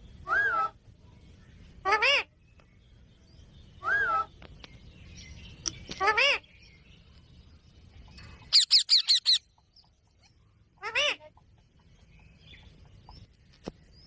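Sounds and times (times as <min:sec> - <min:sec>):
parrot calling: 0:01.8 - 0:02.3, 0:08.4 - 0:09.5, 0:10.8 - 0:11.4.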